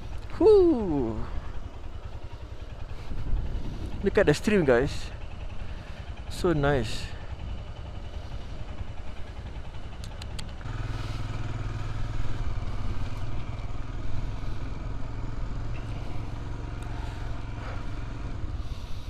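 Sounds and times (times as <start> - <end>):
motorcycle engine running: 0.0 - 19.0
light clicks: 10.0 - 10.7.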